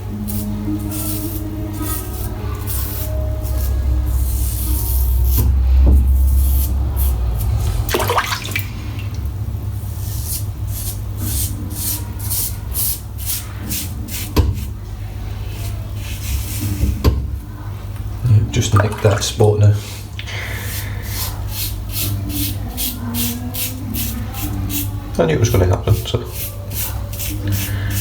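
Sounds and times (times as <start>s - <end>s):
razor scraping scalp: 0.3s - 5.5s, 6.1s - 7.7s, 10.0s - 14.3s, 20.6s - 24.9s, 26.2s - 28.0s
water running: 7.2s - 9.4s, 18.2s - 20.5s.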